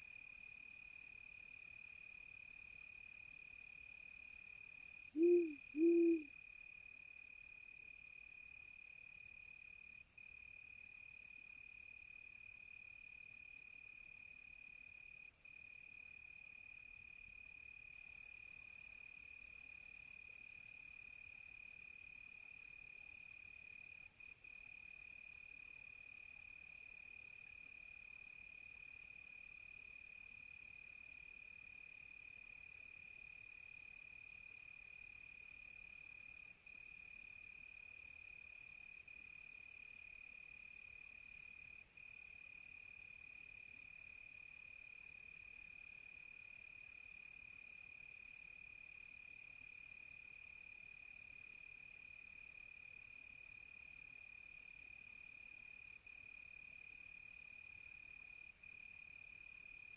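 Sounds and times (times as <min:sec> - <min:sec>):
crickets trilling: 0:05.2 - 0:06.3.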